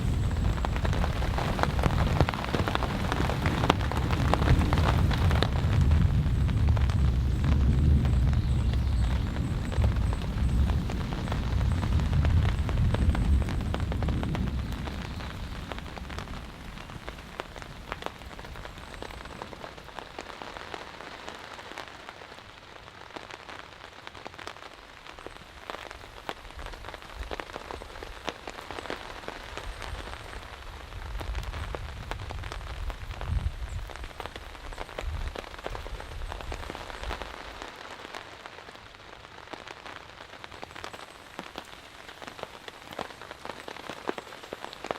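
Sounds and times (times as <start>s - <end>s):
thunder rumbling: 0.0s - 21.2s
heavy rain falling: 0.0s - 44.9s.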